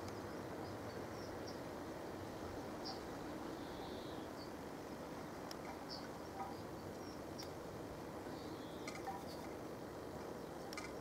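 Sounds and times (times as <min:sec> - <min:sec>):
low ambient hum: 0:00.0 - 0:11.0
faint click: 0:06.9 - 0:07.6.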